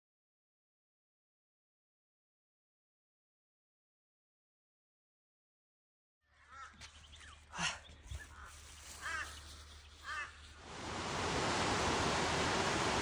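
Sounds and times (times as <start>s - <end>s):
bird calls: 6.2s - 10.6s
falling water rushing: 10.0s - 13.0s.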